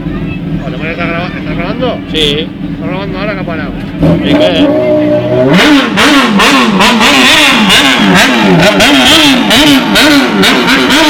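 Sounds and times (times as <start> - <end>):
motorcycle engine revving: 3.8 - 11.0.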